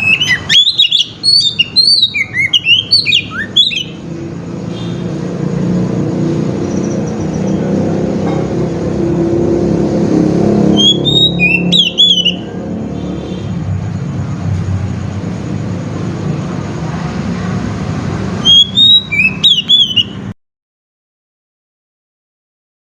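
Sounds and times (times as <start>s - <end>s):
bird singing whistled notes: 0.0s - 5.0s, 10.7s - 13.5s, 18.3s - 20.4s.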